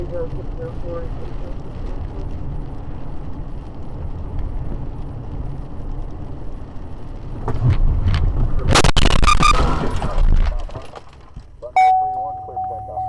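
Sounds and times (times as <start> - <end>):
car road and engine rumble: 0.0 - 13.0
vehicle collision crash: 7.3 - 11.6.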